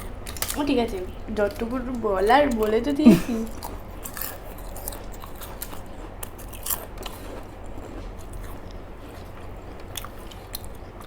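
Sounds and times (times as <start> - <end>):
food crunching: 0.0 - 11.0
low steady hum: 0.0 - 11.0
person chewing food: 2.5 - 11.0.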